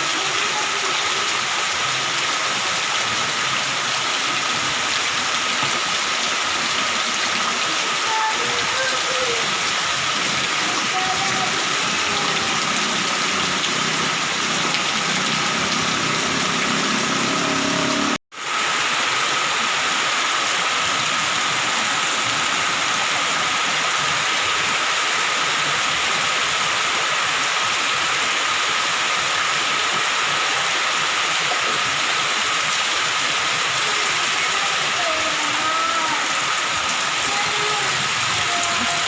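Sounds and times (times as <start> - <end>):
heavy rain falling: 0.0 - 39.0.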